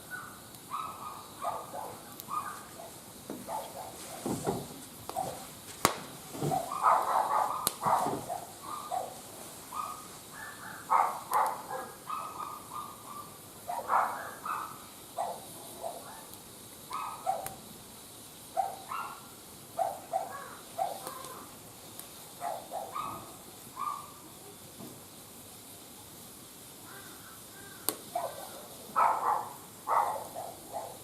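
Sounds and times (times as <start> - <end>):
faint sharp clicks: 27.8 - 28.0.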